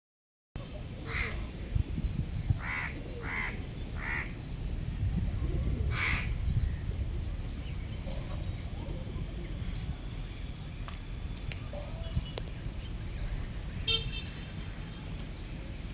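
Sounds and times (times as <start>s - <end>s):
steady low rumble: 0.6s - 15.9s
crow cawing: 1.1s - 1.3s, 2.6s - 4.3s, 5.9s - 6.3s.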